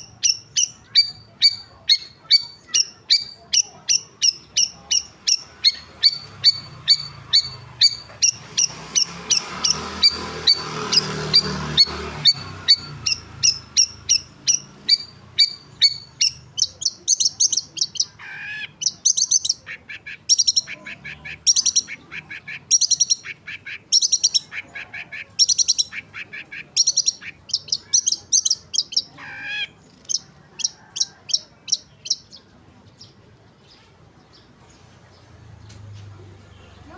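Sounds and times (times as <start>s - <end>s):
bird lower falling calls: 0.0s - 24.7s
bird sharp high chirps: 0.0s - 34.5s.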